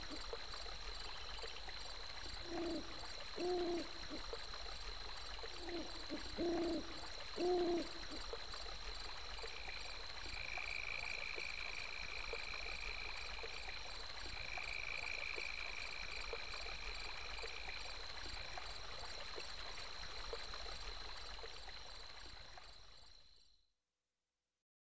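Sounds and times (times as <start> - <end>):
low hoot-like calls: 2.4 - 4.4, 5.5 - 8.4.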